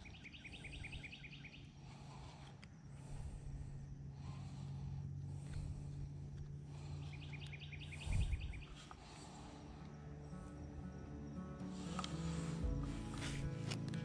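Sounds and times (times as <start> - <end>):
bird singing high chirps: 0.0 - 1.9, 6.8 - 8.9.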